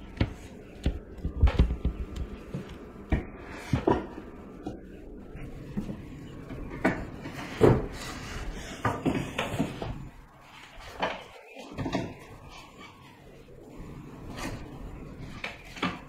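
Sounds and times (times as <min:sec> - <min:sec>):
knocks and bumps: 0:00.0 - 0:05.0.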